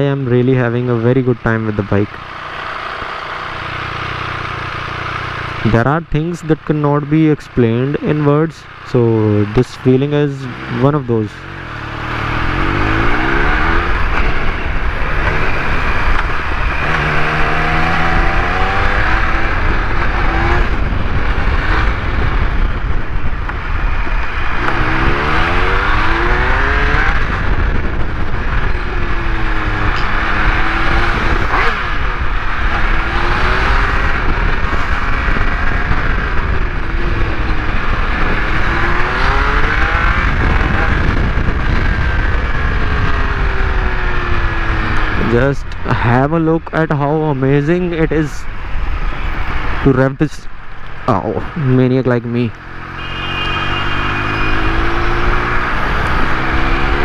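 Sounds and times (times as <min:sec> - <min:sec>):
motorcycle engine accelerating: 0:00.0 - 0:57.0
wind noise rushing: 0:11.4 - 0:51.6, 0:52.8 - 0:57.0.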